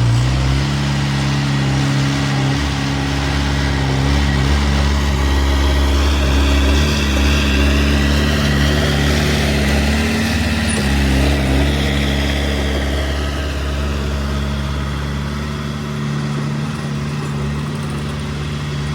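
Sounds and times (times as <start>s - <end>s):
construction machinery diesel engine: 0.0s - 18.9s.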